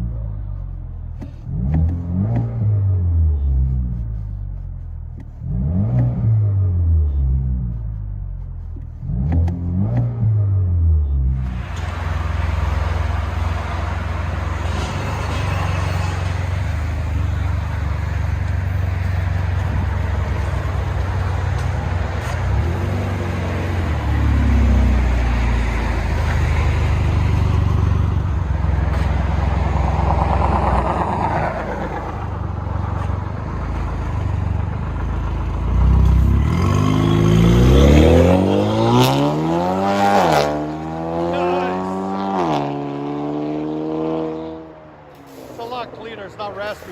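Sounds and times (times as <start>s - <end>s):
car engine and exhaust revving: 0.0s - 46.9s.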